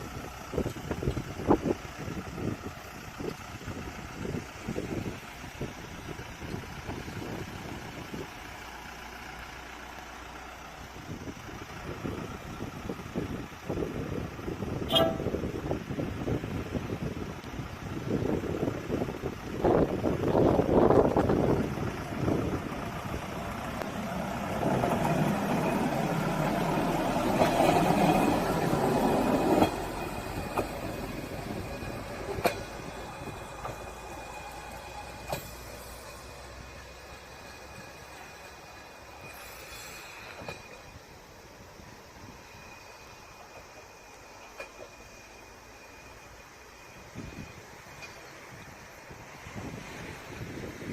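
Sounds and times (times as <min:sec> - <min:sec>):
vehicle engine idling: 0:00.0 - 0:39.2.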